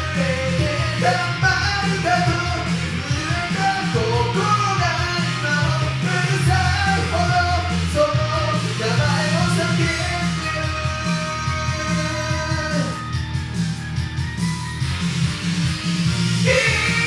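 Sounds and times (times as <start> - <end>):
man singing pop-rock song: 0.0 - 13.4, 16.4 - 17.0
karaoke backing track: 0.0 - 17.0.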